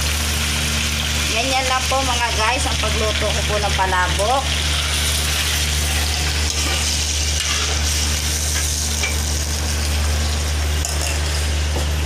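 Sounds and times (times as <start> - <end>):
sauce sizzling and bubbling: 0.0 - 12.0
metal ladle scraping wok: 4.6 - 9.4.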